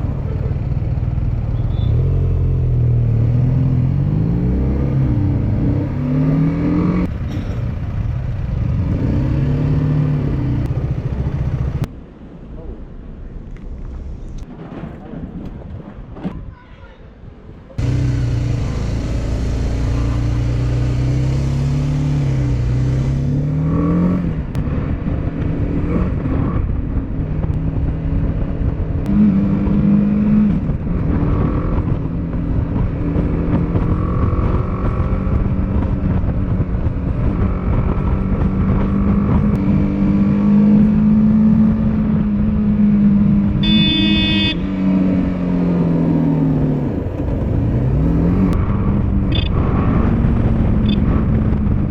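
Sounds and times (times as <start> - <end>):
motorcycle engine: 0.0 - 11.9, 17.8 - 51.9
rush of wind: 22.1 - 43.8, 44.4 - 51.9.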